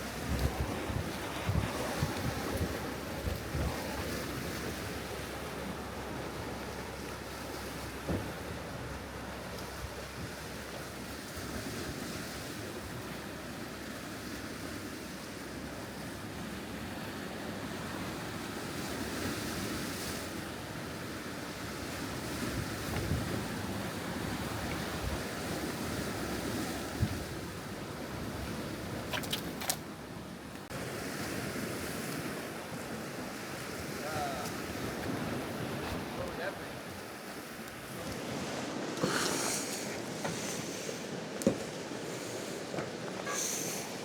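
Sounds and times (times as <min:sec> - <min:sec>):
wind buffeting microphone: 0:00.0 - 0:04.5, 0:22.2 - 0:29.1
ocean surf: 0:00.0 - 0:44.0.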